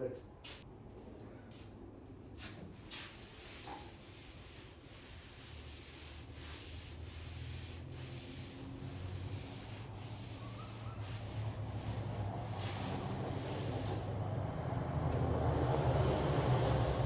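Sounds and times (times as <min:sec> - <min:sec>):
wet towel wiping car panels: 0:02.8 - 0:14.1.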